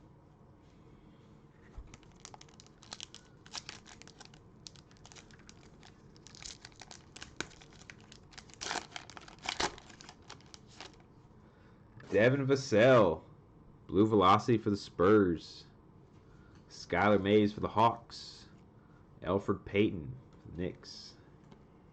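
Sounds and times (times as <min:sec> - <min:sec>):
cellophane wrapper crinkling: 0:01.8 - 0:11.1.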